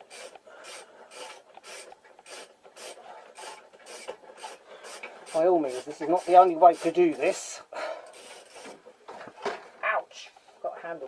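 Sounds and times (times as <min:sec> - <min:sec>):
hand tool rasping: 0:00.0 - 0:08.8.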